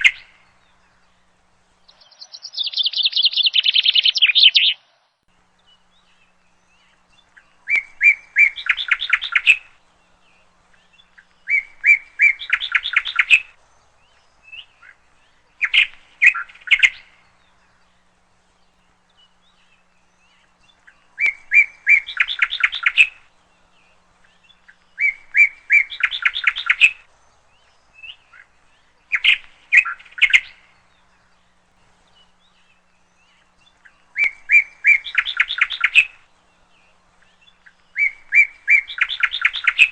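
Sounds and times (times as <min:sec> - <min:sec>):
bird singing with rattling notes: 0:00.0 - 0:04.8, 0:05.4 - 0:39.9.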